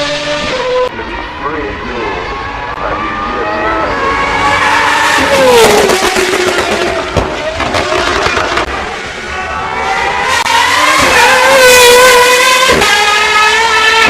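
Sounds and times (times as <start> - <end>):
race car engine revving: 0.0 - 14.0
exhaust pops and crackles: 5.6 - 8.8.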